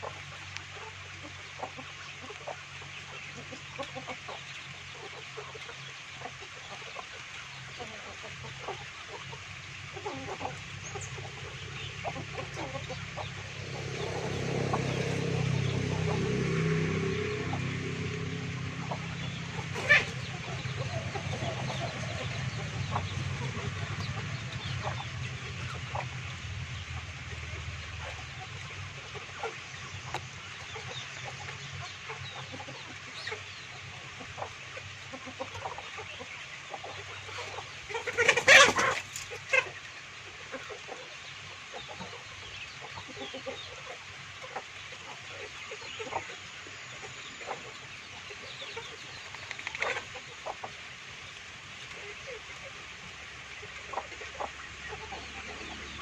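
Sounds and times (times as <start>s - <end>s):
chickens clucking: 0.0s - 56.0s
low hum: 9.7s - 31.8s.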